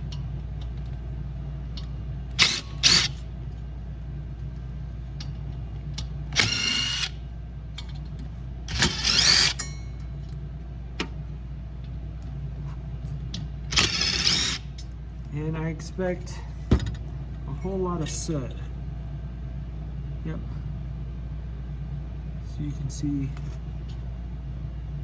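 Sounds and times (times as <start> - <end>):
steady low hum: 0.0 - 25.0
cordless drill whirring: 2.4 - 3.2, 6.4 - 7.2, 8.7 - 9.6, 13.7 - 14.6.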